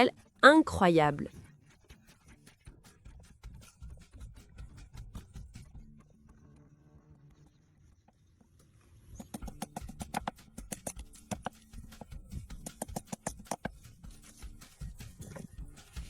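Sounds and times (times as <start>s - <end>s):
knife chopping on cutting board: 9.2s - 14.2s.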